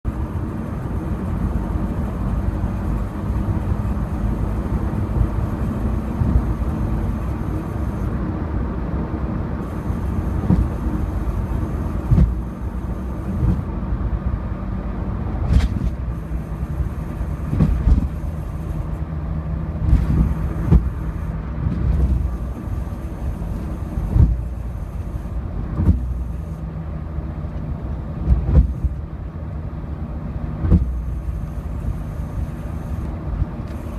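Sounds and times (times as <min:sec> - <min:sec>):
road and tyre rumble in car: 0:00.0 - 0:33.9
car thumping over bumps: 0:04.3 - 0:06.9, 0:09.6 - 0:13.8, 0:15.4 - 0:18.6, 0:19.8 - 0:22.8, 0:23.6 - 0:24.9, 0:25.6 - 0:26.6, 0:28.1 - 0:29.1, 0:30.5 - 0:31.5.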